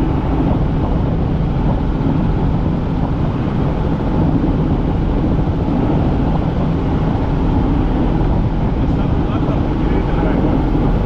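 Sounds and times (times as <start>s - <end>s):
helicopter rotor and engine drone: 0.0s - 11.0s.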